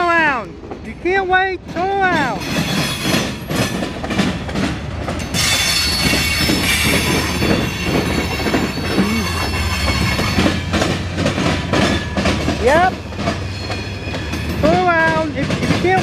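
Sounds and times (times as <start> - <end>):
freight train rumbling by: 0.0 - 16.0
wheels clacking over rail joints: 1.6 - 16.0
high-pitched wheel squeal: 5.4 - 10.6.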